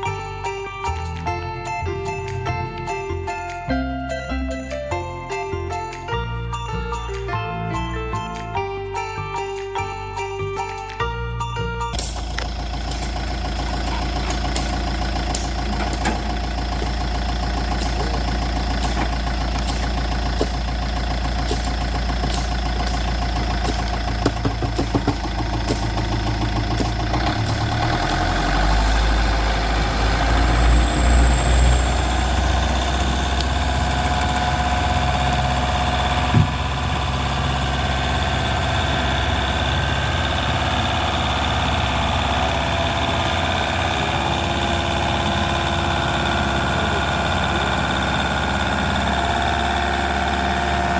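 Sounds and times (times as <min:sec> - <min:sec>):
small engine running: 0:11.9 - 0:50.9.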